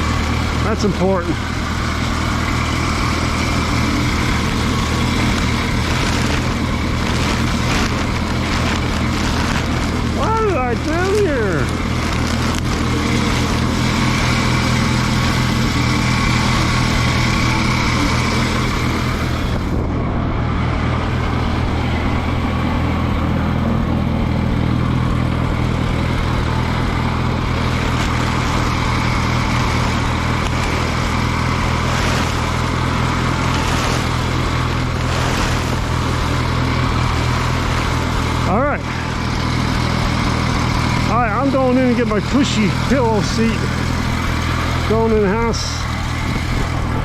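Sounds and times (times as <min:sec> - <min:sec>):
tractor engine idling: 0:00.0 - 0:47.0.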